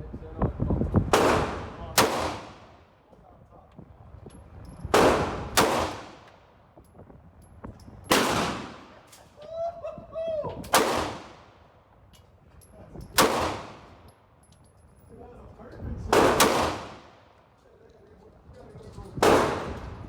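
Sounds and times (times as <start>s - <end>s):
gunshots with echo: 1.1s - 2.7s, 5.0s - 6.2s, 8.1s - 9.0s, 10.8s - 11.4s, 13.2s - 13.9s, 16.1s - 17.2s, 19.2s - 19.8s.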